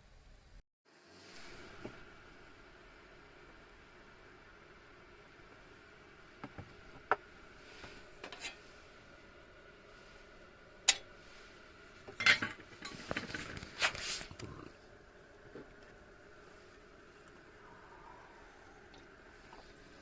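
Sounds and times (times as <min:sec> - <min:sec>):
cookware clinking and clattering: 0:12.1 - 0:13.0.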